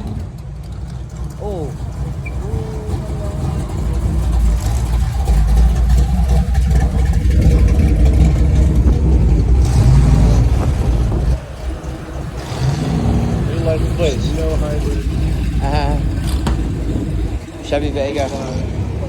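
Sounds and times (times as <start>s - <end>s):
car exhaust rumbling past: 0.0s - 19.0s.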